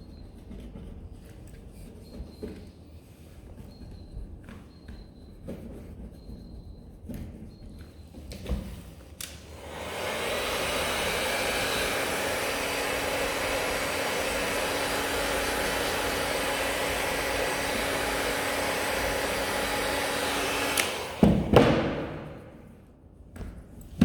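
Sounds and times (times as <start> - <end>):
hot-air gun blowing: 9.2 - 22.8
loud knocks: 21.2 - 22.5.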